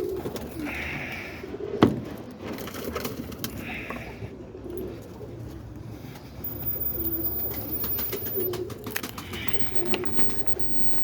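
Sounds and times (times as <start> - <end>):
pigeons cooing: 0.0 - 11.0
hissing rustles: 6.0 - 11.0.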